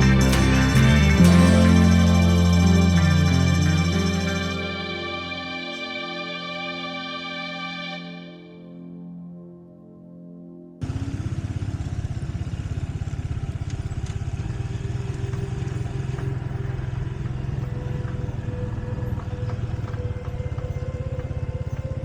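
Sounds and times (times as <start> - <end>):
motorcycle engine running: 0.0 - 4.9, 10.8 - 22.0.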